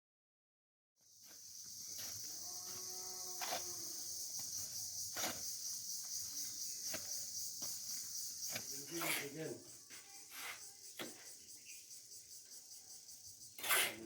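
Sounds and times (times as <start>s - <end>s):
insects chirring: 1.0s - 14.0s.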